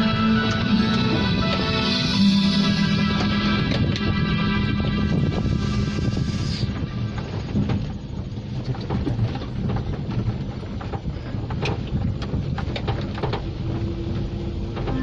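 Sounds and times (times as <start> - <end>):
vehicle engine rumbling: 0.0 - 15.0
clicks and rattles: 7.1 - 15.0.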